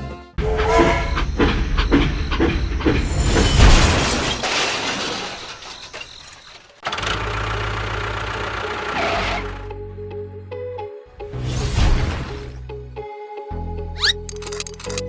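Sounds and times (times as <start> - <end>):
engine starting and chugging: 0.4 - 9.6, 14.0 - 15.0.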